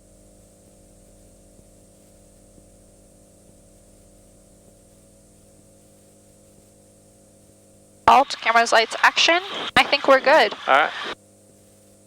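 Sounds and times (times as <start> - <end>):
intercom hiss: 8.1 - 11.2.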